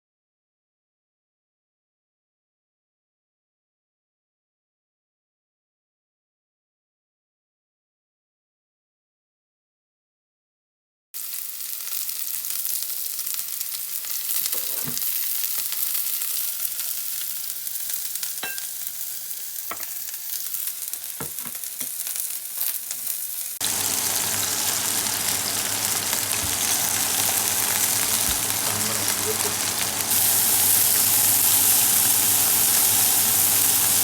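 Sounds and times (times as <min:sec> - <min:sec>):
steady hiss: 0:23.6 - 0:34.0.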